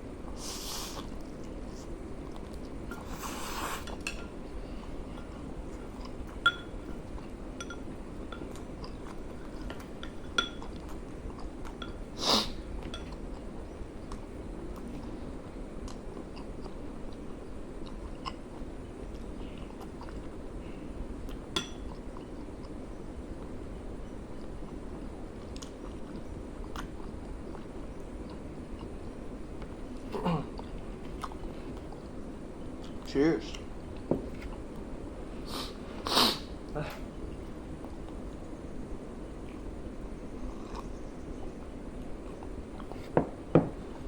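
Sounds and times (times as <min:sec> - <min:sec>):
utensil clinking against bowl: 0:05.1 - 0:07.0, 0:07.6 - 0:08.6, 0:10.0 - 0:10.9
person chewing: 0:08.3 - 0:14.3, 0:15.8 - 0:20.4, 0:21.3 - 0:22.8, 0:24.4 - 0:33.1, 0:40.4 - 0:41.0.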